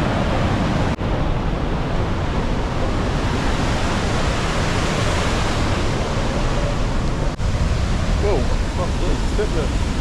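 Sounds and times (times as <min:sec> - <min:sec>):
waterfall rushing: 0:04.0 - 0:10.0.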